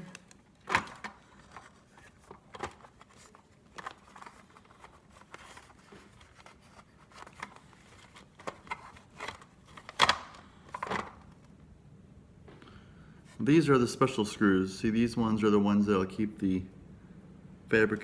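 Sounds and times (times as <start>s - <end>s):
plastic parts clicking and knocking: 0.0s - 6.3s.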